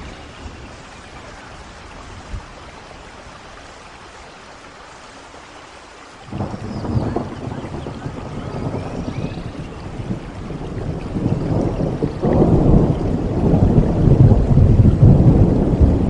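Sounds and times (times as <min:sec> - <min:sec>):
rain falling: 0:00.0 - 0:16.0
thunder rumbling: 0:06.3 - 0:16.0.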